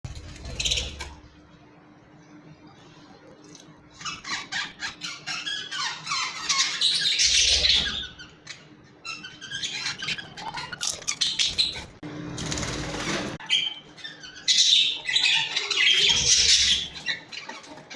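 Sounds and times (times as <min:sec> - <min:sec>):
budgerigars chattering: 0:04.0 - 0:12.0, 0:13.4 - 0:17.8.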